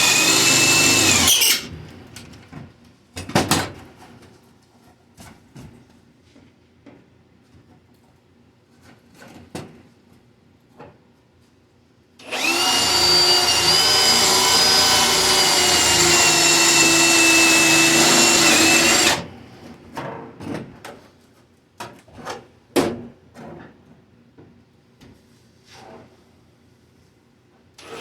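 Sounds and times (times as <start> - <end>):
electric drill on sheet metal: 0.0 - 1.7, 12.2 - 19.3, 27.8 - 28.0.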